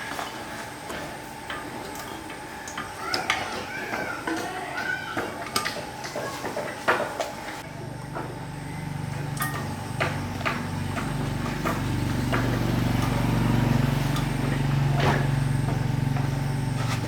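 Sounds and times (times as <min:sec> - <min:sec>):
diesel engine running: 0:07.7 - 0:17.0.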